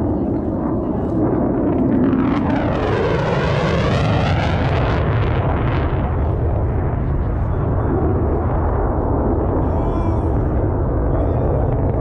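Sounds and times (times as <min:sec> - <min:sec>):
jet aircraft flying past: 0:00.0 - 0:09.6.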